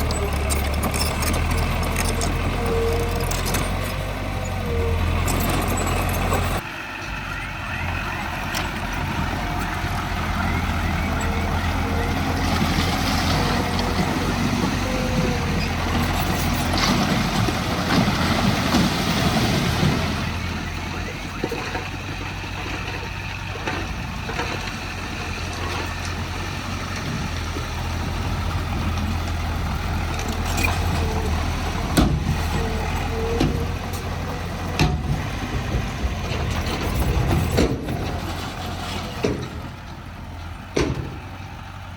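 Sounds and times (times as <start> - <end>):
diesel engine drone: 0.0 - 41.9.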